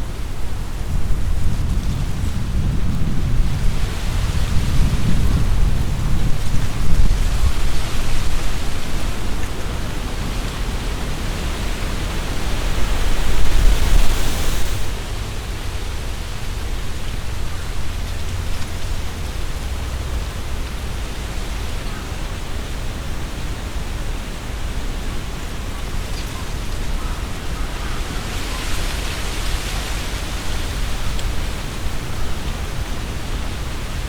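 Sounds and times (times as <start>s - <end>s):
wind buffeting microphone: 0.0s - 21.8s
wind rustling tree leaves: 0.0s - 34.0s.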